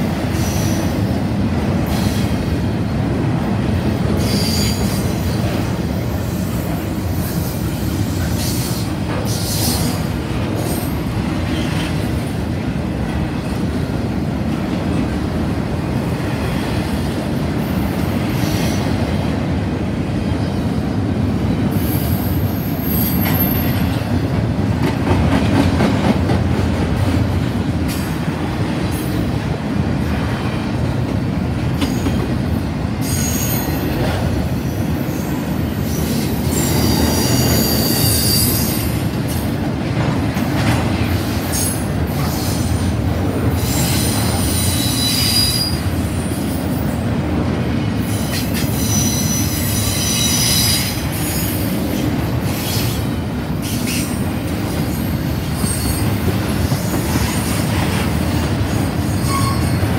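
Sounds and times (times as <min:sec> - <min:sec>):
train wheels rumbling on rail: 0:00.0 - 0:59.9
high-pitched wheel squeals: 0:43.7 - 0:45.9, 0:59.1 - 0:59.9.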